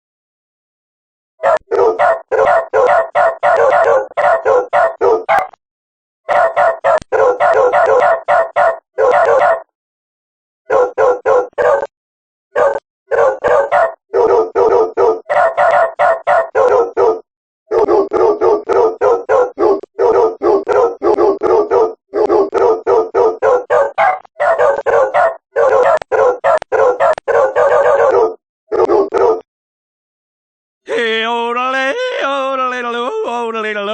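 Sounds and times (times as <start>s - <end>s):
dog yelping and howling: 1.4s - 5.5s, 6.3s - 9.7s, 10.7s - 11.9s, 12.5s - 29.4s.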